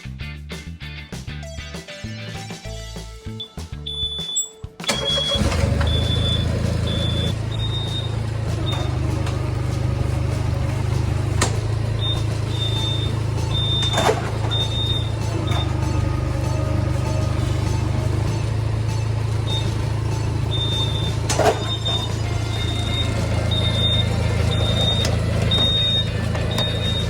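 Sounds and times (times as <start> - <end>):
engine starting and running: 3.9 - 27.0
high tone: 3.9 - 27.0.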